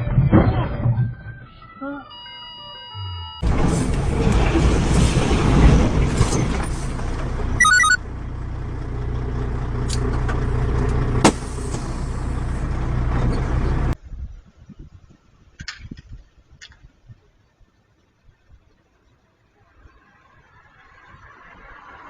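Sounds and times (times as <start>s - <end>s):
vehicle engine and road rumble: 3.4s - 22.0s
quick beeps: 7.6s - 8.0s.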